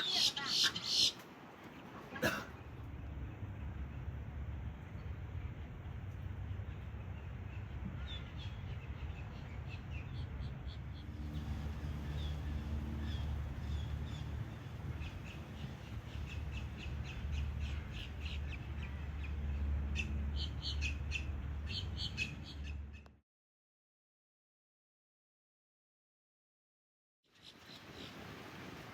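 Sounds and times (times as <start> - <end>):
birds cawing: 0.0 - 1.2.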